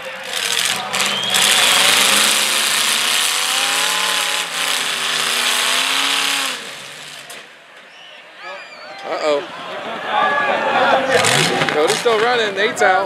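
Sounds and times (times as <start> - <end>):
loud rushing noise: 0.0 - 7.5
car engines running hard: 0.0 - 7.6, 11.1 - 12.5.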